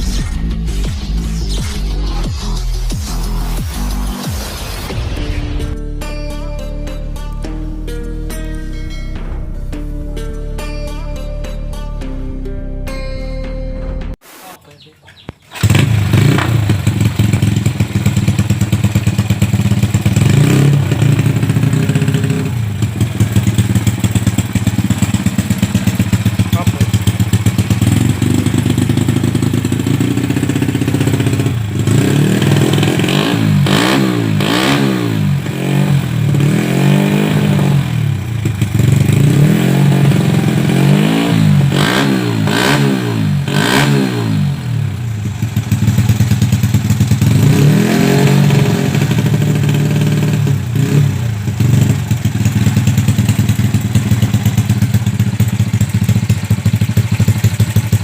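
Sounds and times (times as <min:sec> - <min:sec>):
motorcycle throttle blips: 0:15.1 - 0:35.7
motorcycle engine idling: 0:15.4 - 0:58.0.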